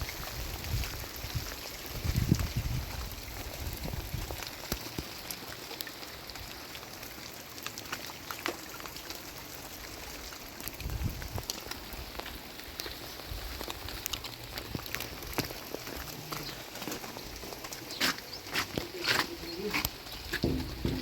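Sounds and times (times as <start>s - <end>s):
heavy rain on hard surface: 0.0s - 21.0s.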